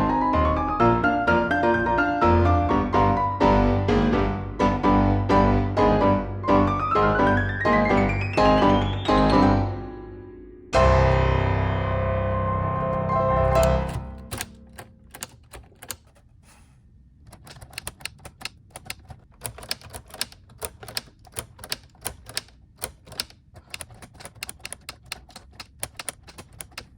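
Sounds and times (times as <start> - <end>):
background music: 0.0 - 15.1
typewriter keys clicking: 13.4 - 16.2, 17.2 - 26.9.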